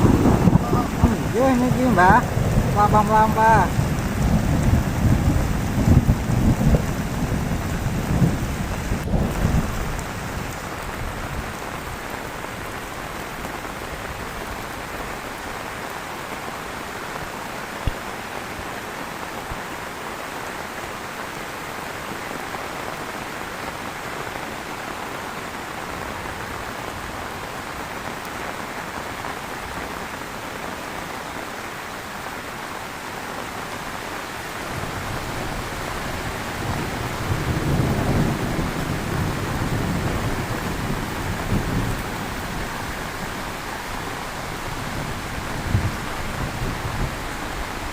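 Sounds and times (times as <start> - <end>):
thunder rumble: 0.0 - 15.6, 34.7 - 47.9
heavy rain falling: 0.0 - 47.9.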